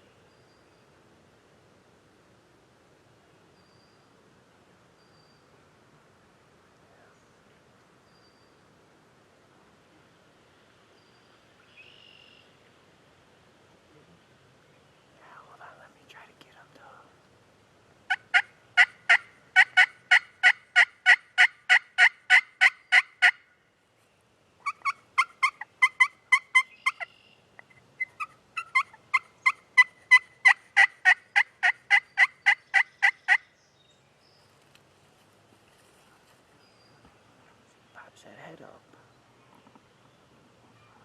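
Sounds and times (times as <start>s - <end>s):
turkey yelping: 18.1s - 23.4s, 24.6s - 27.2s, 28.0s - 33.4s.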